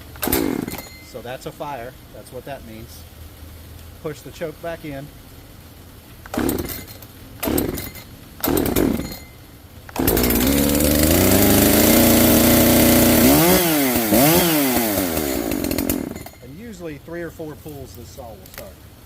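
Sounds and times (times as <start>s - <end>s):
chainsaw engine running: 0.0s - 1.0s, 6.3s - 9.3s, 9.9s - 16.4s
chainsaw throttle blips: 0.0s - 1.2s, 6.2s - 16.5s
starter cord pulls: 0.2s - 0.9s, 6.2s - 9.2s, 9.9s - 16.4s.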